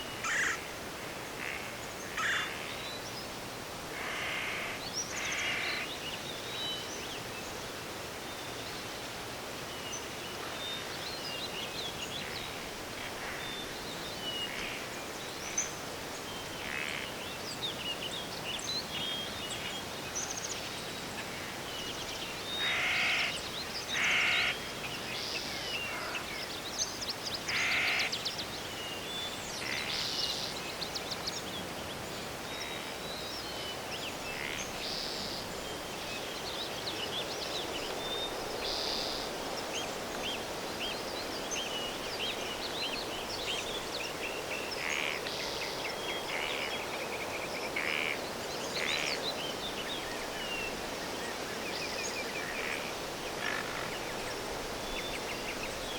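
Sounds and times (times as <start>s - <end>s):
background hiss: 0.0s - 55.9s
crows cawing: 0.2s - 0.6s, 1.4s - 2.6s, 4.0s - 5.8s, 22.6s - 23.3s, 24.0s - 24.6s, 27.5s - 28.1s.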